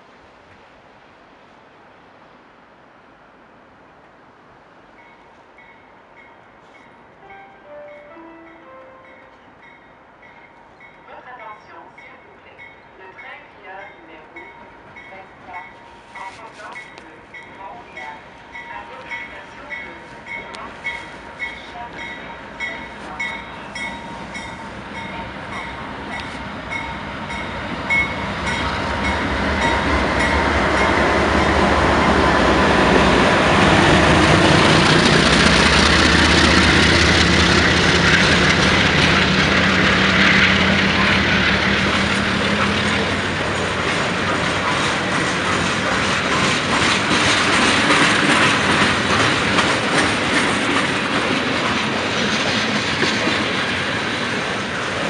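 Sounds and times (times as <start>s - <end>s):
diesel locomotive engine drone: 0.0s - 55.0s
train wheels clicking over rail joints: 33.5s - 55.0s.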